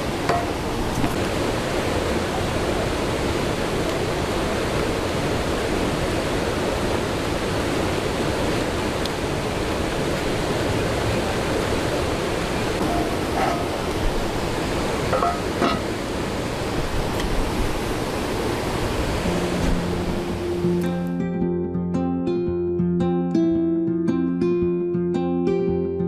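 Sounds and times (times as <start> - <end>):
rushing water: 0.0 - 21.3.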